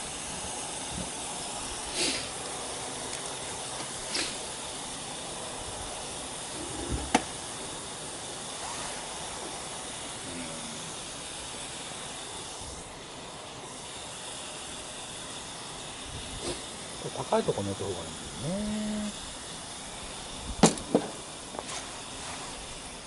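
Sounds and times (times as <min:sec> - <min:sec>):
meat sizzling in a skillet: 0:00.0 - 0:23.0
sharp pop: 0:20.6 - 0:21.1.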